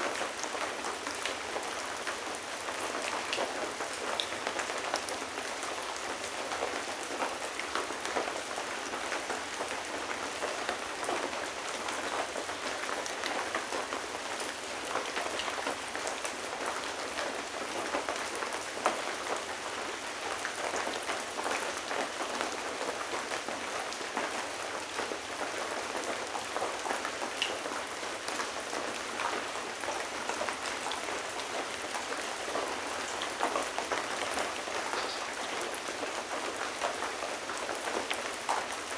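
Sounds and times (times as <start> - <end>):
rain pattering on hard surfaces: 0.0 - 38.9.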